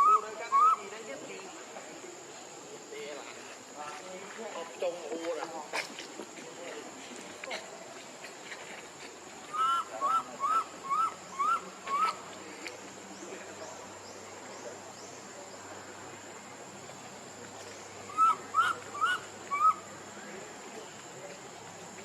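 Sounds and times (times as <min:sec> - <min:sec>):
animal calling: 0:09.5 - 0:12.2, 0:18.1 - 0:19.8.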